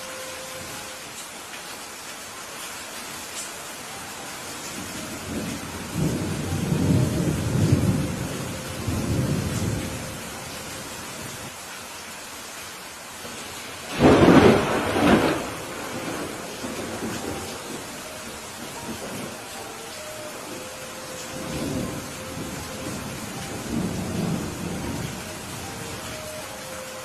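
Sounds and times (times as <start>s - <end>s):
steady rain: 0.0s - 27.0s
low rolling thunder: 4.8s - 10.5s, 13.9s - 19.5s, 20.4s - 26.1s
sharp thunderclap: 13.9s - 17.4s.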